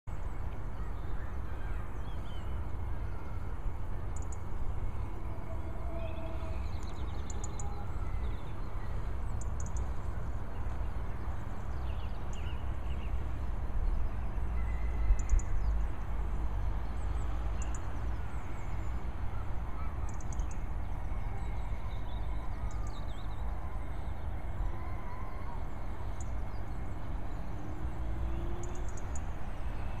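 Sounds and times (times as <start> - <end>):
small birds chirping: 5.8 - 24.7.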